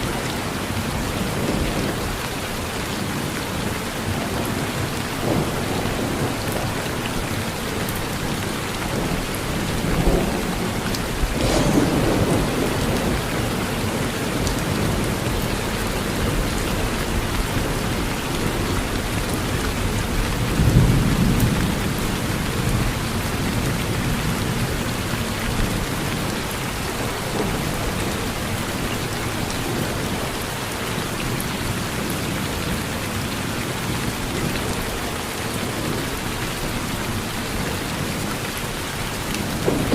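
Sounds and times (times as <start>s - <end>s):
rain falling on a porch: 0.0s - 39.9s
thunder rumbling: 3.0s - 36.1s, 39.3s - 39.9s.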